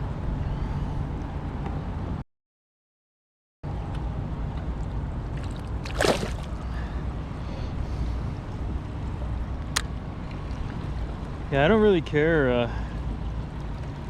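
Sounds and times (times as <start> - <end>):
water moving around kayak: 5.3 - 7.0.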